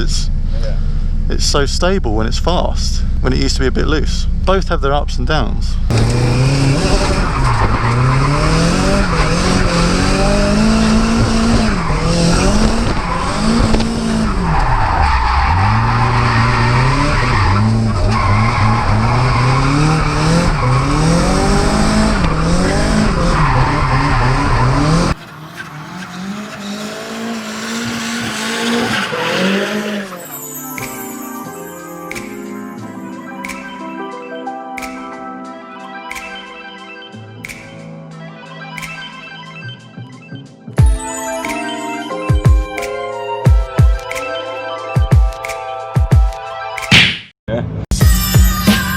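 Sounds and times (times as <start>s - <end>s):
quieter car sound: 0.0s - 31.0s
car engine revving: 5.4s - 30.4s
tyres skidding and squealing: 5.8s - 32.5s.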